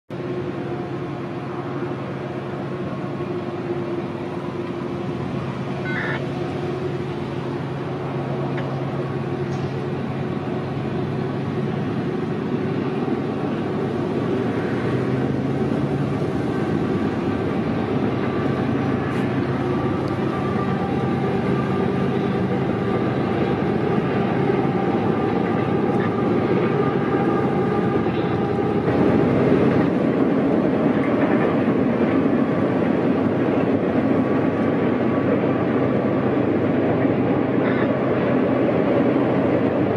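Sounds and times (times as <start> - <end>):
freight locomotive engine drone: 0.1 - 39.9
train crossing steel trestle: 0.1 - 39.9.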